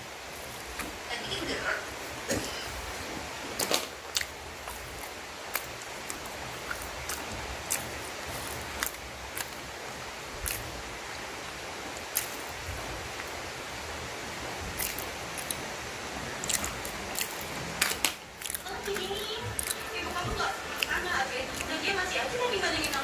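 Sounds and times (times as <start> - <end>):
steady hiss: 0.0 - 23.0
person chewing with wet smacks: 3.6 - 9.6, 10.4 - 10.7, 12.0 - 12.5, 14.7 - 15.7, 16.4 - 22.2.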